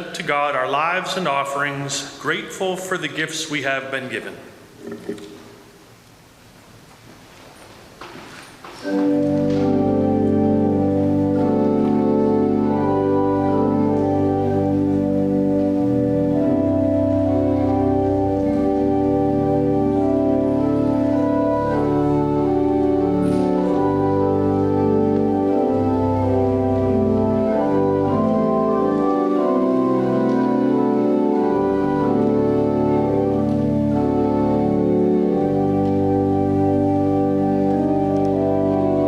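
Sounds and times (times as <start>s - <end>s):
organ playing held chords: 8.8s - 39.0s.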